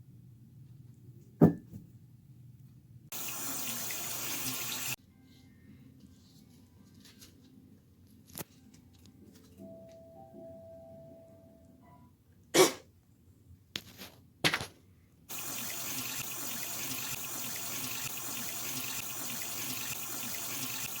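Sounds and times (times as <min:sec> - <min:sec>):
water running from a tap: 0:03.1 - 0:05.0, 0:15.3 - 0:21.0.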